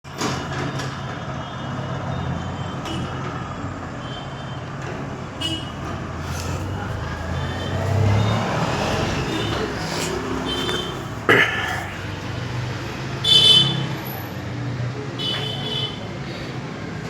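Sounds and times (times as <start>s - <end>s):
diesel engine droning: 5.4s - 13.6s.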